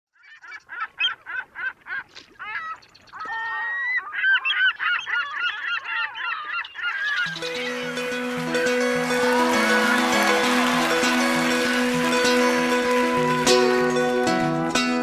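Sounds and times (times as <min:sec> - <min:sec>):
flock of birds calling: 0:00.2 - 0:14.4.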